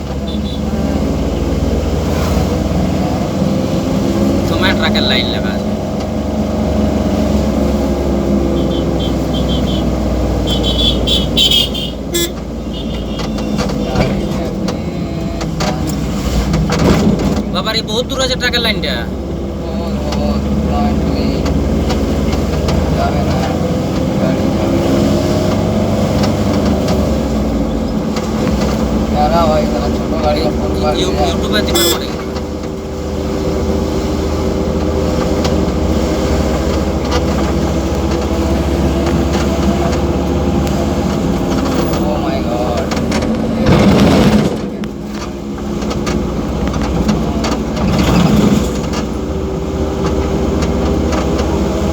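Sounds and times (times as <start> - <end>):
vehicle engine idling: 0.0 - 16.8
truck engines idling: 0.0 - 51.9
short high-pitched beeps: 31.7 - 32.1.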